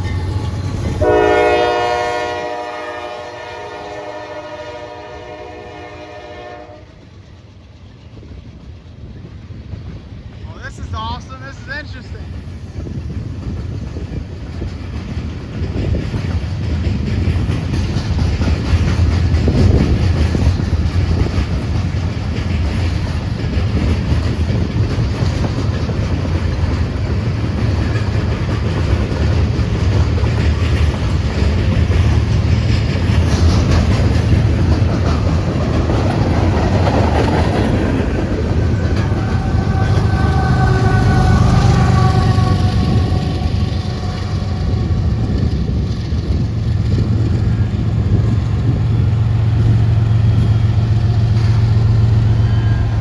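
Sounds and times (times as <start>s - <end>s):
freight train rumbling past: 0.0s - 53.0s
wheels clicking over rail joints: 12.9s - 53.0s
high ringing tone: 52.2s - 53.0s.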